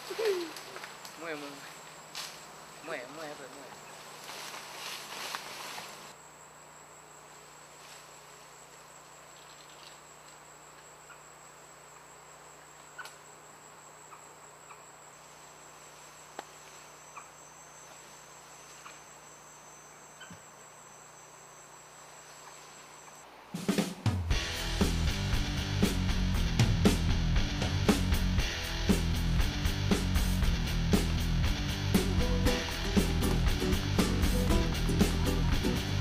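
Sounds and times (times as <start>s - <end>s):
insects trilling: 0.0s - 23.3s.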